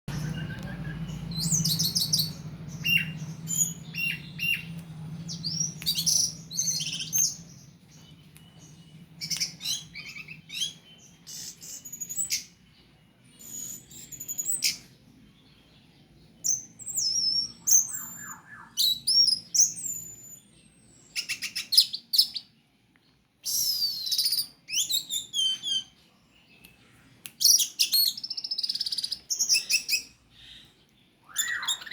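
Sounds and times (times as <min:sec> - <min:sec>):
low steady hum: 0:00.1 - 0:18.8.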